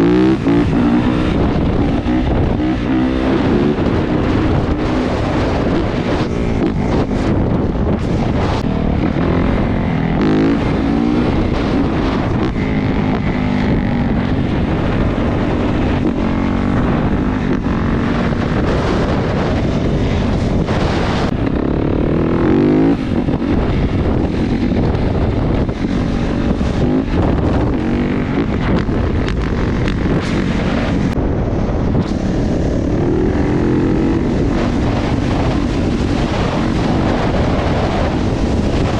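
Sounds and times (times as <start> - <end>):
motorcycle engine revving: 0.0 - 38.9
wind noise on microphone: 0.0 - 38.9.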